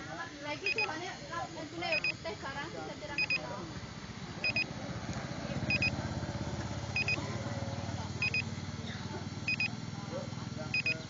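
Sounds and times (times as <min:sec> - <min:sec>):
engine idling: 0:02.3 - 0:11.0
high double electronic beep: 0:04.4 - 0:04.7, 0:05.7 - 0:06.0, 0:08.2 - 0:08.5, 0:10.8 - 0:11.0.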